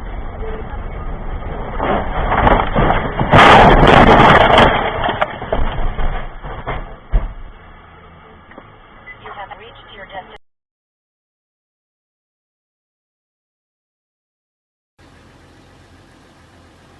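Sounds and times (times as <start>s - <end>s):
vehicle crash: 0.0s - 10.1s
knocks: 2.3s - 7.5s.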